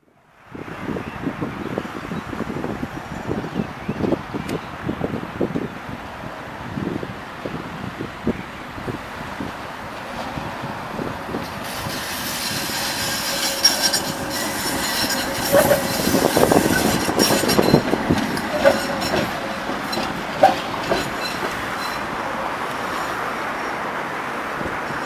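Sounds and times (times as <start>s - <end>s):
tram running on rails: 0.2s - 25.0s
wheel clacks over track: 11.0s - 23.7s
faint high wheel squeal: 11.3s - 25.0s.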